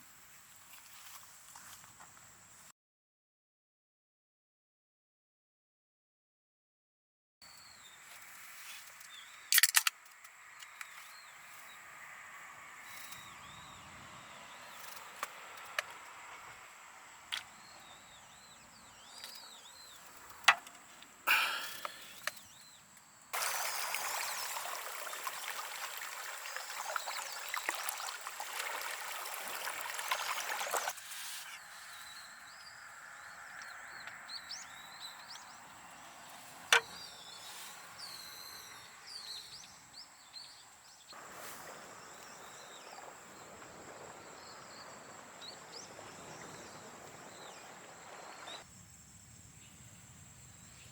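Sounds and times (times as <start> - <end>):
steady hiss: 41.2 - 50.9.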